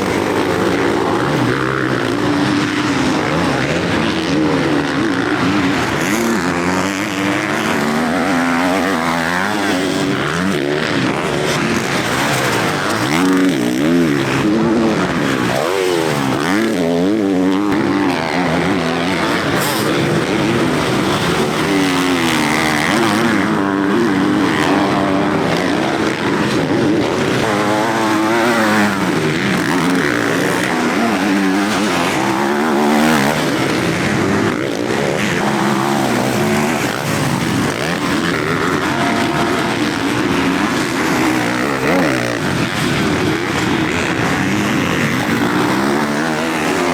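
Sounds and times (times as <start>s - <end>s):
motocross bikes revving: 0.0s - 46.9s.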